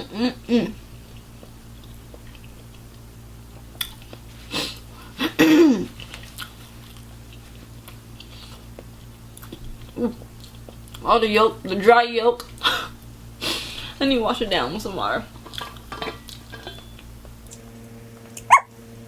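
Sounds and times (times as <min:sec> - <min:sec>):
chewing food: 0:06.0 - 0:11.0.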